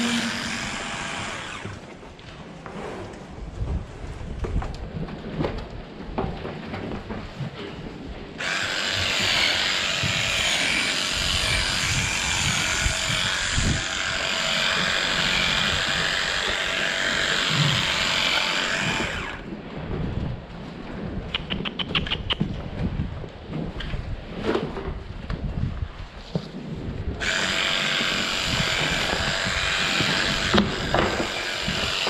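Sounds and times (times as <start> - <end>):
power tool running: 0.0 - 1.9, 8.4 - 19.5, 27.2 - 32.0.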